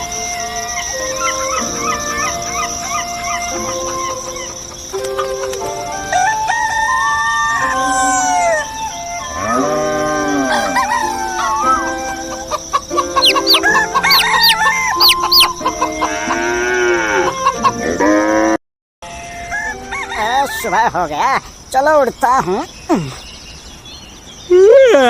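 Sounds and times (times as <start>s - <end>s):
small birds chirping: 0.0s - 16.3s, 20.1s - 25.0s
rooster crowing: 6.0s - 17.5s, 19.1s - 20.9s.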